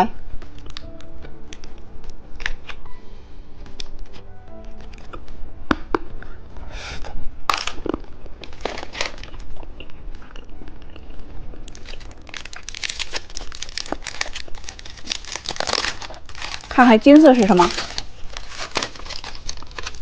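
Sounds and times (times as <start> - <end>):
plastic wrapper crinkling: 7.5 - 10.4, 11.6 - 20.0.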